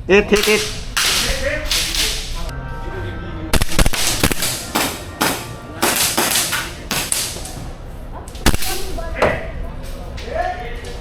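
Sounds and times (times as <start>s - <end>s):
airsoft guns firing: 0.3s - 2.3s, 3.6s - 7.7s, 8.4s - 9.4s.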